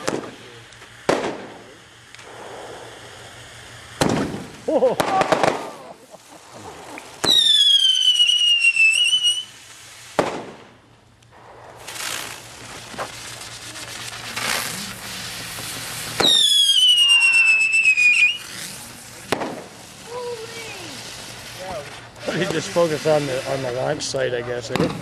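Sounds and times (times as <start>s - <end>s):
firework bang: 0.0s - 0.4s, 1.1s - 3.0s, 4.0s - 6.0s, 6.6s - 8.6s, 10.1s - 23.2s, 24.7s - 25.0s
firework crackling and hissing: 0.0s - 25.0s
falling firework whistle: 4.0s - 6.0s, 6.9s - 10.6s, 11.4s - 22.9s.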